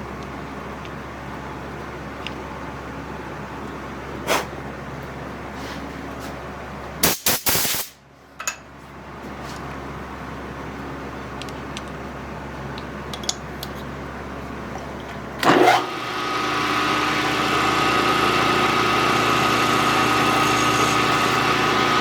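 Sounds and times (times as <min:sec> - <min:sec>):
electric motor whine: 0:15.4 - 0:22.0.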